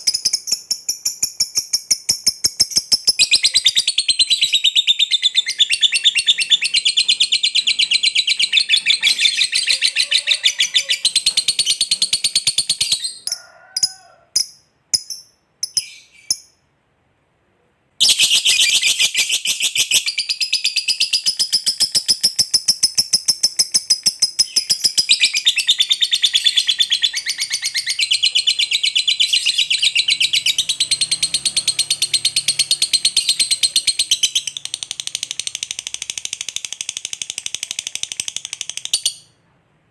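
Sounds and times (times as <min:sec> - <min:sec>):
lovebird high-pitched chattering: 0:00.0 - 0:16.6, 0:18.0 - 0:39.4.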